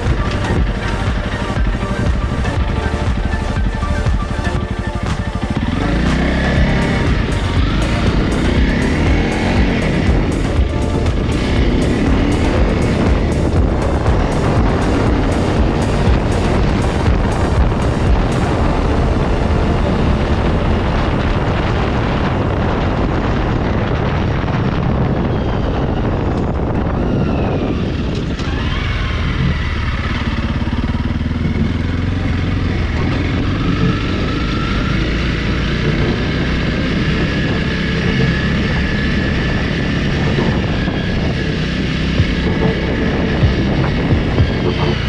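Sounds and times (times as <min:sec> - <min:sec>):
motorcycle engine running: 0:00.0 - 0:45.0
wind rush on microphone: 0:00.0 - 0:45.0.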